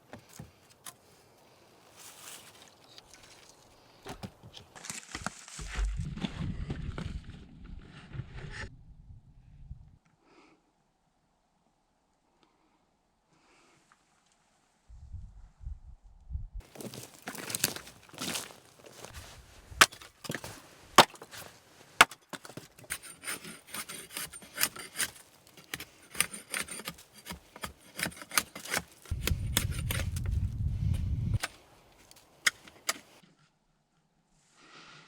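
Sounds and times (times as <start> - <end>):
dull low rumble: 5.6 - 10.0, 14.9 - 16.6, 29.1 - 31.4
sticks and logs knocking: 16.7 - 33.2
wood rubbing: 16.7 - 33.2.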